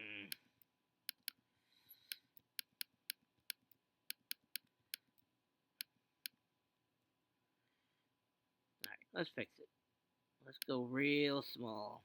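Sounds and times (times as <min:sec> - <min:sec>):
computer mouse clicking: 0:01.1 - 0:01.4, 0:02.0 - 0:05.1.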